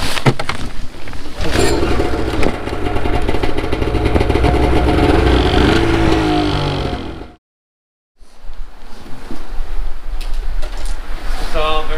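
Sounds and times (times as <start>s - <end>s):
snowmobile engine running: 1.4s - 7.4s.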